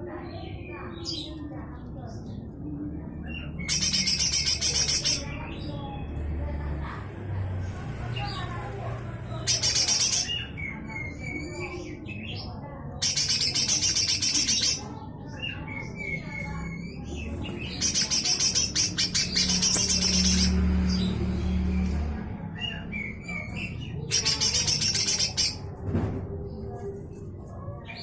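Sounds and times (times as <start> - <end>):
bird rasping rattling call: 3.6 - 5.3, 9.4 - 10.5, 13.0 - 14.8, 17.6 - 21.1, 24.0 - 25.6.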